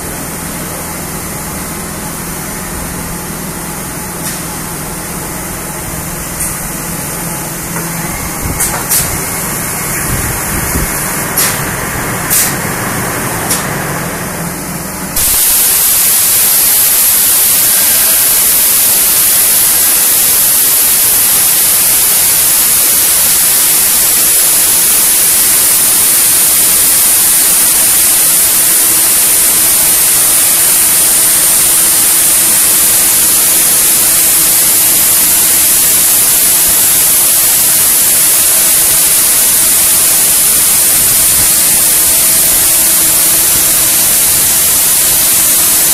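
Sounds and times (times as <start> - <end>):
faint steady whine: 0.0 - 45.9
loud steady spray hiss: 0.0 - 45.9
machine running: 0.0 - 45.9.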